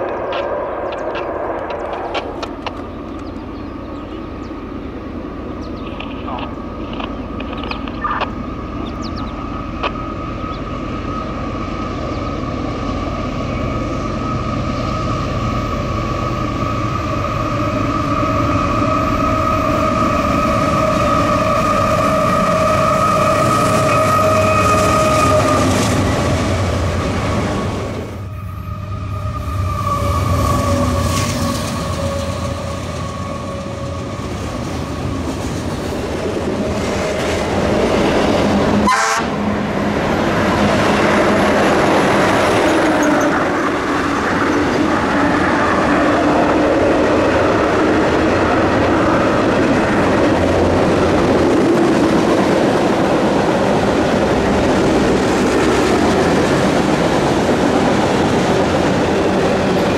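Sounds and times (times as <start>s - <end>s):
freight train rumble and wheel clatter: 0.0s - 59.9s
train horn held tones: 18.9s - 25.8s, 38.8s - 39.6s.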